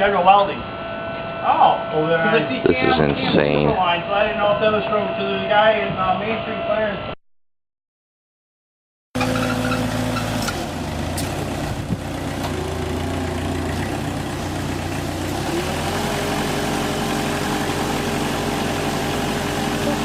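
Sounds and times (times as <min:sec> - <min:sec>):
engine running: 0:09.2 - 0:20.0.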